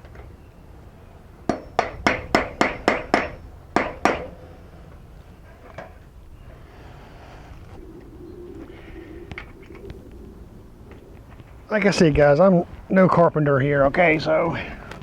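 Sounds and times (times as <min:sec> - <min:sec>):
hammer blows: 0:01.5 - 0:04.6.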